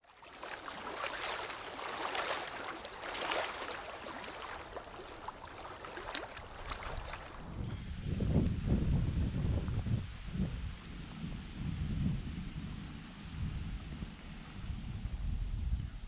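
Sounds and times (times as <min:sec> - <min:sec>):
water splashing and lapping: 0:00.0 - 0:07.8
wind buffeting microphone: 0:00.9 - 0:16.0.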